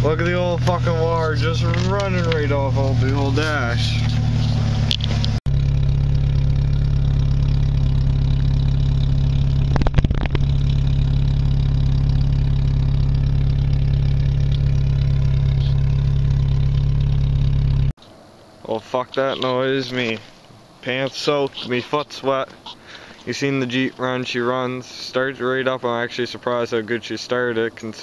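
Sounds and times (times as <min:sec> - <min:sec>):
engine knocks: 0:00.0 - 0:17.9
car engine idling: 0:00.0 - 0:18.0.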